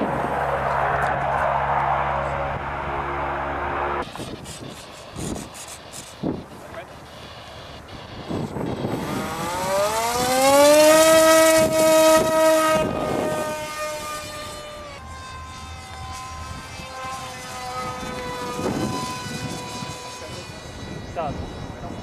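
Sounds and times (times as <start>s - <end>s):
model airplane electric motor whine: 0.0s - 22.0s.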